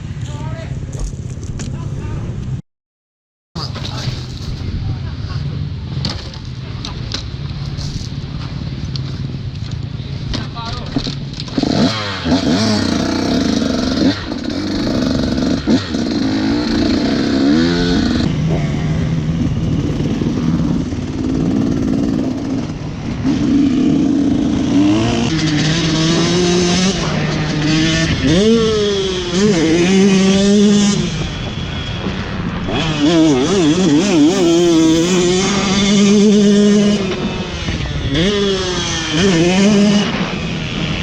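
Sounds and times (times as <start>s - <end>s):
motocross bike engine revving: 10.7s - 41.0s.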